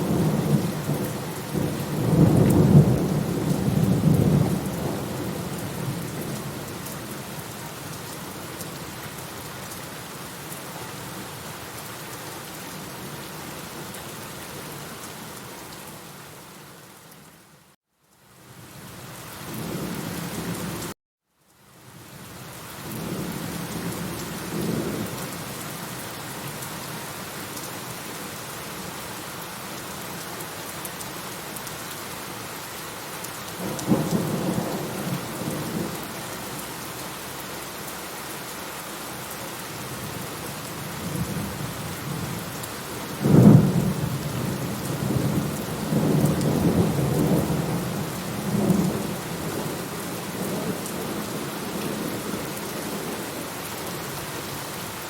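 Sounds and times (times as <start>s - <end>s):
steady rain: 0.0s - 55.0s
rolling thunder: 43.1s - 49.7s.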